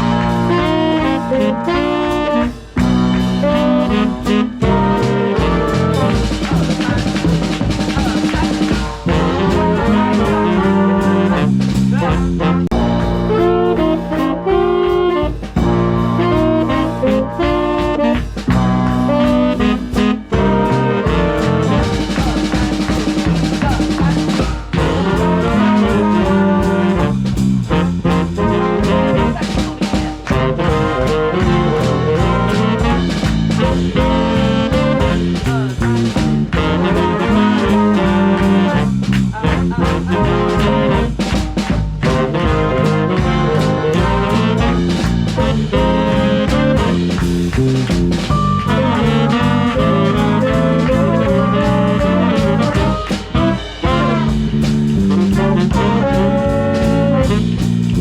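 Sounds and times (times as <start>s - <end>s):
swing band playing: 0.0s - 58.0s.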